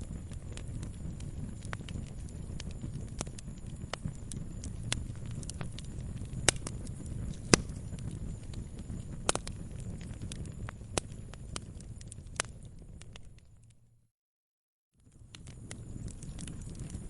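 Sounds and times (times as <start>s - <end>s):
wood fire crackling: 0.0s - 13.9s, 15.0s - 17.0s
low rumble of flames: 0.0s - 14.0s, 15.0s - 17.0s.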